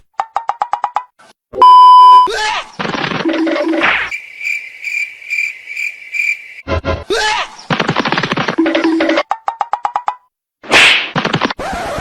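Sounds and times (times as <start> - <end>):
crickets chirping: 4.1 - 6.7.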